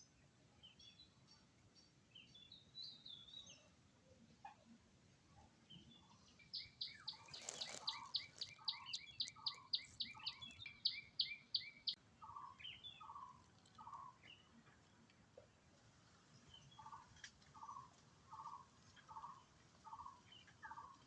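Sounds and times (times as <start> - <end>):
bird chirping: 5.7 - 14.5.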